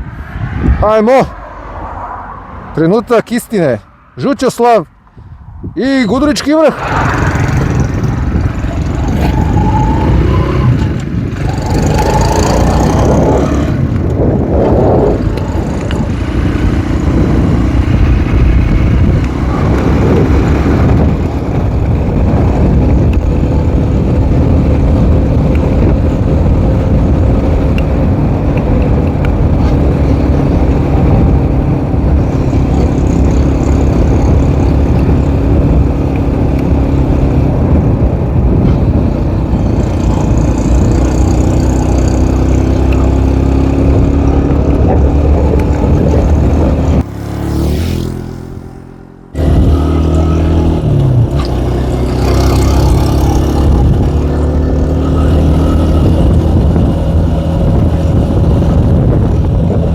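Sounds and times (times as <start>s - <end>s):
dirt bike engine revving: 6.8s - 21.3s, 39.8s - 59.2s.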